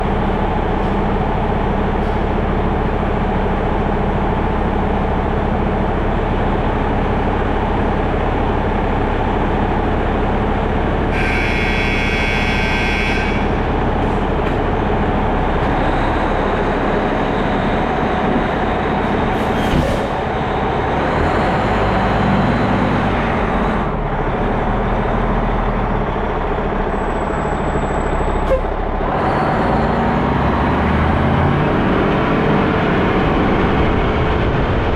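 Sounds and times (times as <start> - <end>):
diesel engine running: 0.0 - 34.9
high-pitched siren blast: 11.2 - 13.6.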